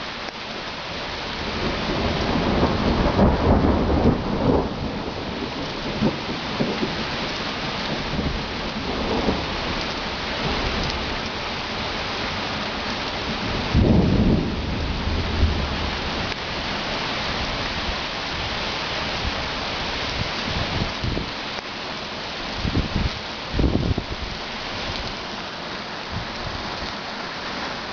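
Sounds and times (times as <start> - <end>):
heavy rain: 0.0 - 27.9
thunder rumbling: 1.3 - 21.3.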